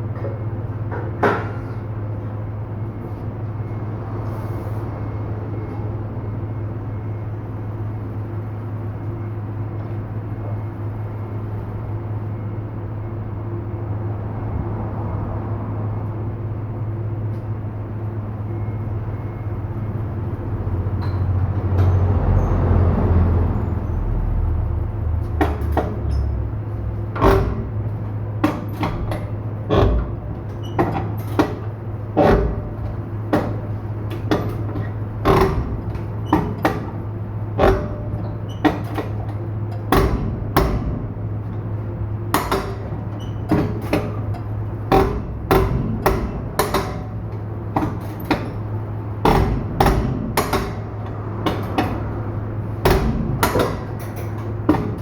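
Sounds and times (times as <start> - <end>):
low machine hum: 0.0 - 55.0
sharp metallic knocks: 27.0 - 55.0.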